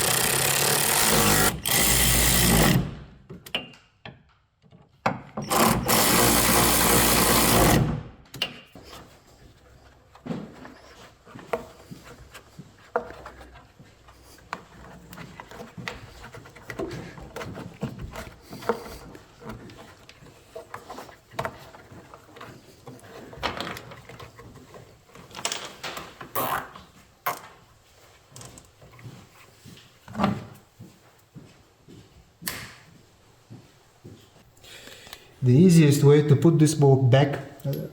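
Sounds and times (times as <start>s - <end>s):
power drill running: 0.0s - 3.0s, 5.4s - 7.9s
parts clicking and knocking: 0.0s - 8.9s.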